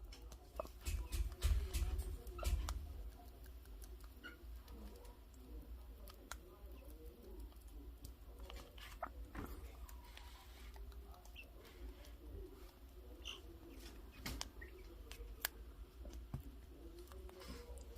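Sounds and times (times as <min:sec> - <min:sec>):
sharp taps and bumps: 0:00.6 - 0:02.8.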